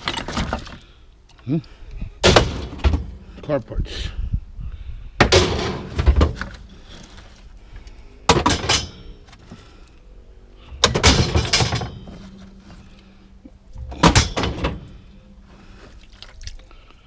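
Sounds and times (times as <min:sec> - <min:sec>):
scrap metal car parts clanking: 0:00.0 - 0:00.9, 0:02.2 - 0:03.5, 0:05.2 - 0:07.5, 0:08.2 - 0:09.8, 0:10.6 - 0:15.6.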